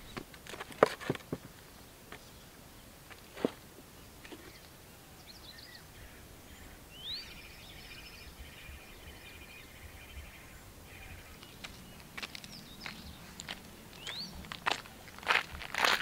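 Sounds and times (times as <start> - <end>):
songbirds calling faintly: 0.0 - 16.0
bird chirping and trilling: 5.2 - 14.5.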